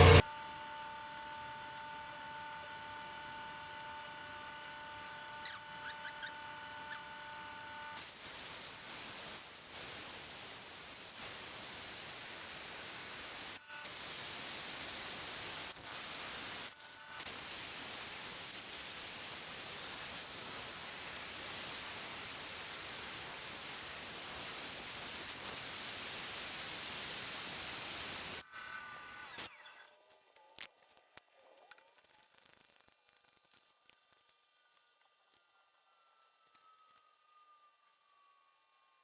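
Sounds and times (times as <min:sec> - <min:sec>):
steady hiss: 0:08.0 - 0:16.6.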